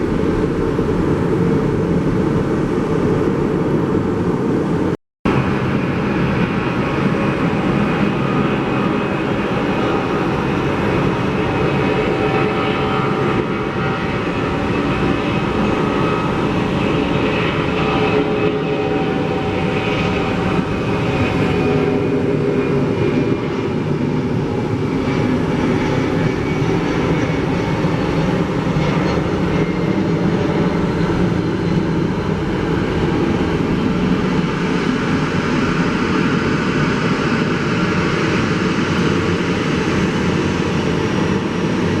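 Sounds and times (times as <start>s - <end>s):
faint jet engine whine: 0.0s - 42.0s
jet engines rumbling: 0.0s - 42.0s.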